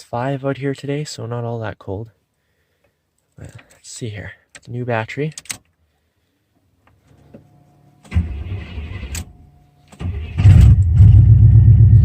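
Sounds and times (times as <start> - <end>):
starter cranking engine: 8.1 - 9.3, 9.9 - 12.0.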